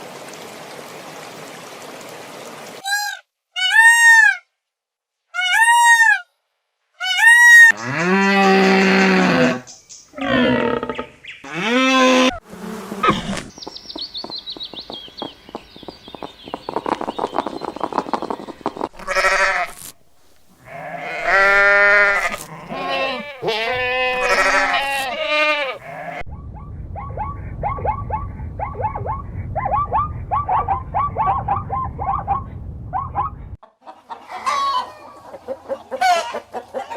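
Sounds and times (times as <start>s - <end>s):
livestock bleating: 19.0s - 19.8s, 20.6s - 26.2s.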